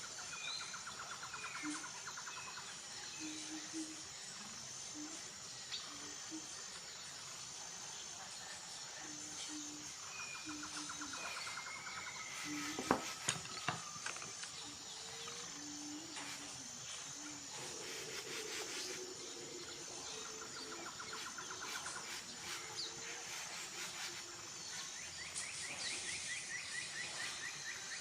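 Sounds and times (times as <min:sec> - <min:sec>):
birds calling: 0:09.1 - 0:28.0.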